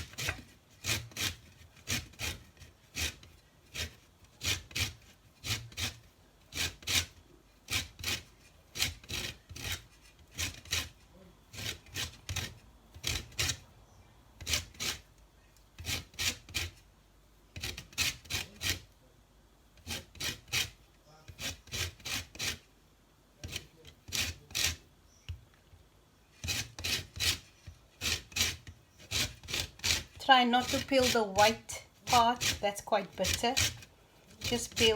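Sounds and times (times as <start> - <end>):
lemon rind rasping on zester: 0.0 - 13.7, 23.4 - 24.9, 26.4 - 34.9.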